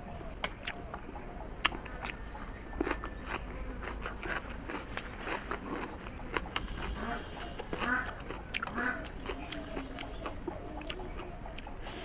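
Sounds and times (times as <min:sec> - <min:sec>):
mouth clicks and smacks: 0:00.4 - 0:02.2
person chewing noodles: 0:00.5 - 0:12.0.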